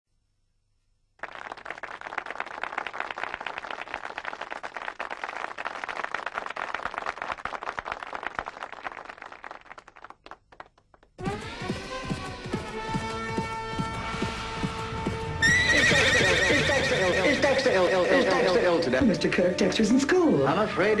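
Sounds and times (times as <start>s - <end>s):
audience applauding: 1.2s - 11.2s.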